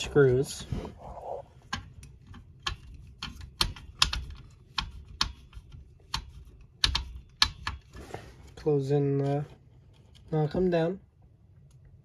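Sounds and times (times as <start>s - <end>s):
small plastic parts clicking: 1.6s - 8.0s.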